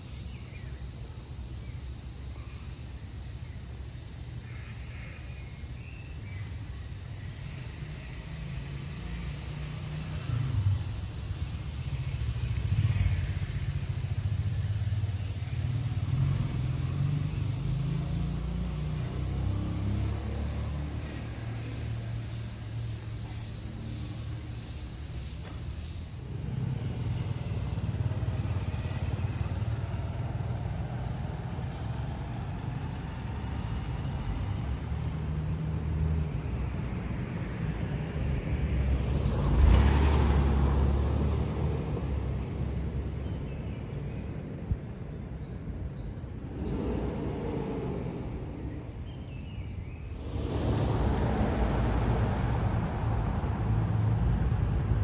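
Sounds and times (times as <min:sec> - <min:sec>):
traffic rumble: 0:00.0 - 0:55.0
vehicle passing close: 0:26.2 - 0:55.0.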